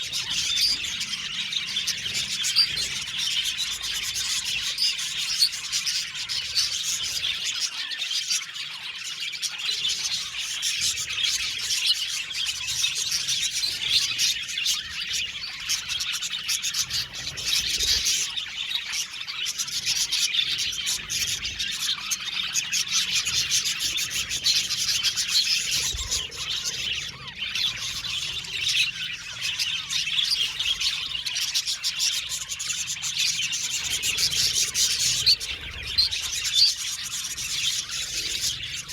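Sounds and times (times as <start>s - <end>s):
budgerigars chirping and warbling: 0.0s - 38.9s.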